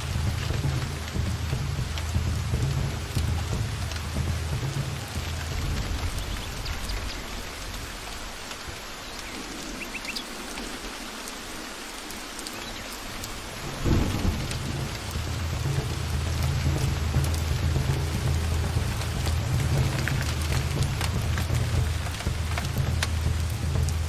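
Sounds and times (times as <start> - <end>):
low rumbling thunder: 0.0 - 9.9, 13.2 - 24.0
steady rain falling: 0.0 - 24.0.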